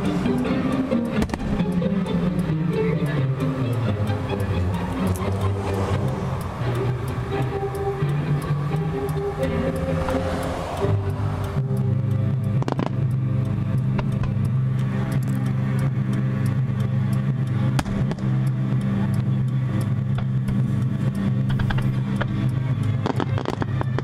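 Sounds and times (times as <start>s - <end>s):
vehicle engine idling: 0.0s - 24.0s
fireworks pops: 1.2s - 1.6s, 12.6s - 13.1s, 17.8s - 18.4s, 21.5s - 22.3s, 23.0s - 24.0s.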